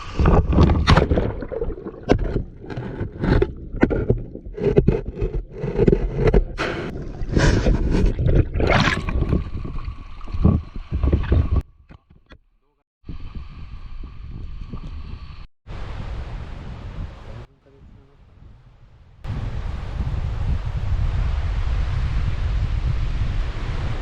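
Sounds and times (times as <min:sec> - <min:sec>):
water splashing and gurgling: 0:00.0 - 0:11.6
knocks and scrapes: 0:00.0 - 0:12.4.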